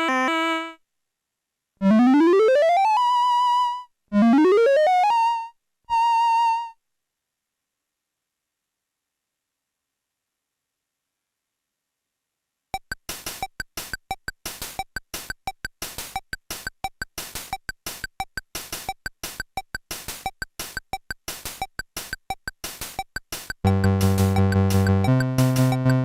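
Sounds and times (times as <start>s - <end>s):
clicky electronic rhythm pattern: 12.8s - 26.0s.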